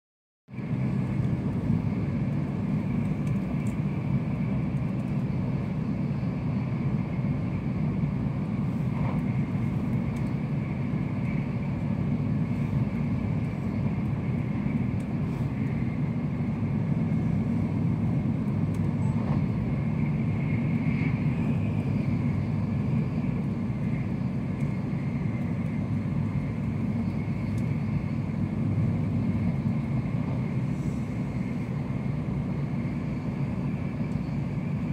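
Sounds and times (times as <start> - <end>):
low train cabin rumble: 0.5 - 34.9
light ticks: 3.0 - 3.8, 9.9 - 10.4, 18.4 - 19.4, 24.5 - 25.8, 27.4 - 27.7, 34.1 - 34.3.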